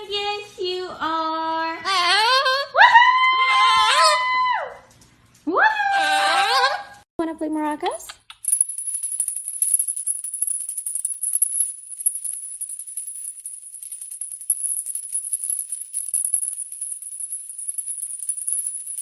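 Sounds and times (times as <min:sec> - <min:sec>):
toy maraca rattling: 0:08.4 - 0:19.0.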